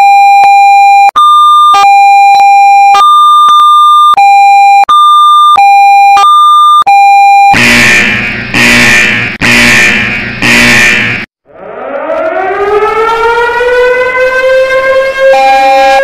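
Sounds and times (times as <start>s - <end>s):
two-tone electronic alarm: 0.0s - 16.0s
loud harsh noise: 7.6s - 11.8s.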